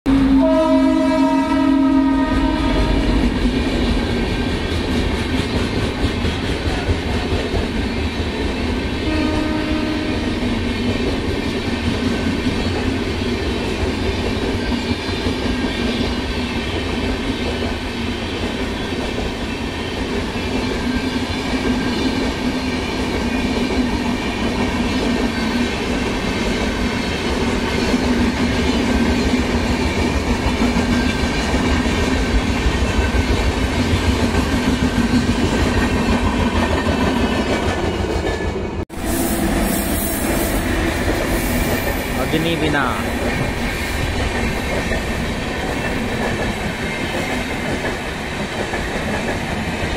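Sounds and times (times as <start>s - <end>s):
train horn: 0.1s - 3.4s, 9.0s - 10.5s, 38.9s - 41.1s
passing train rumble and clatter: 0.1s - 49.9s.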